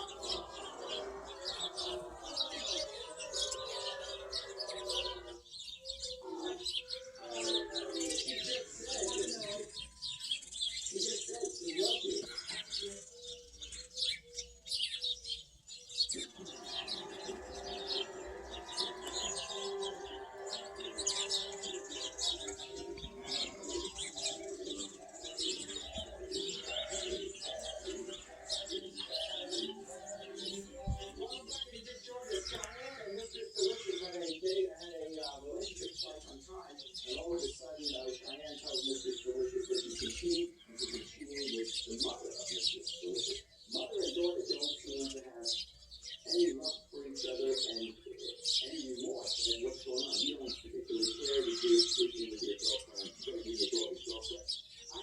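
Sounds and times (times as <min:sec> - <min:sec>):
dove cooing: 0:00.0 - 0:09.6, 0:15.8 - 0:31.8, 0:32.4 - 0:34.4
small birds chirping: 0:00.0 - 0:55.0.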